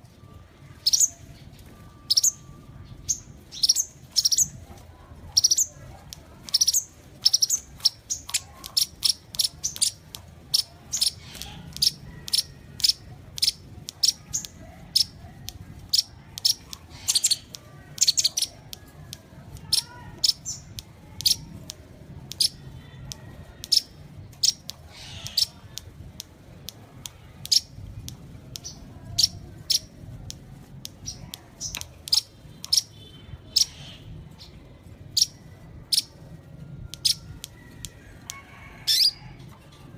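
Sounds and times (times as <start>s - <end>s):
sunbird sharp high chirps: 2.0s - 4.6s, 15.9s - 18.6s.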